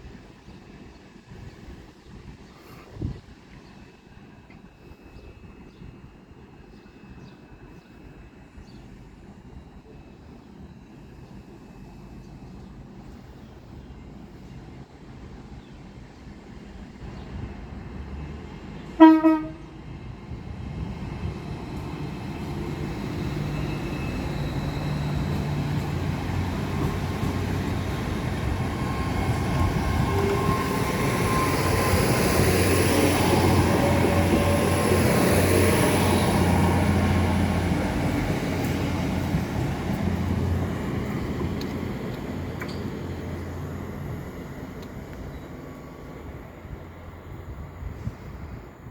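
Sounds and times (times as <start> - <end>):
train rumble and wheel noise: 0.0 - 48.9
train horn blast: 19.0 - 19.8, 29.9 - 31.7.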